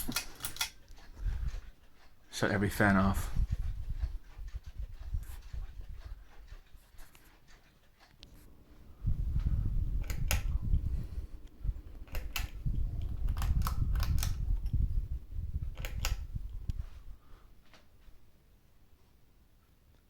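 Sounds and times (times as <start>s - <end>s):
wind rumble on microphone: 1.1s - 1.8s, 2.7s - 6.8s, 8.8s - 17.5s
pull-chain switch clicks: 15.7s - 16.2s.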